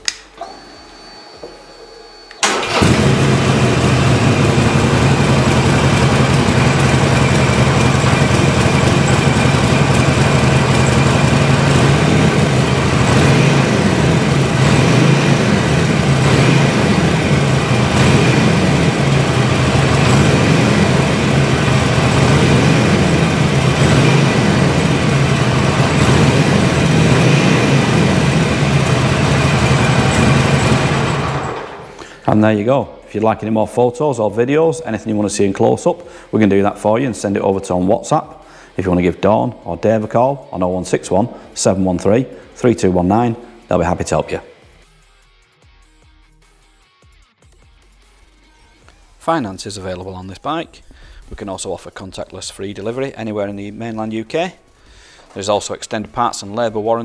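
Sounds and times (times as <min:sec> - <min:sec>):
motorcycle engine starting and idling: 0:02.3 - 0:44.8.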